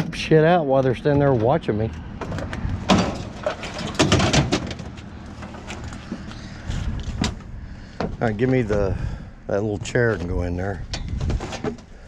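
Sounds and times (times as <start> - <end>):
sharp knocks and clattering: 0.0 - 6.3, 10.9 - 11.9.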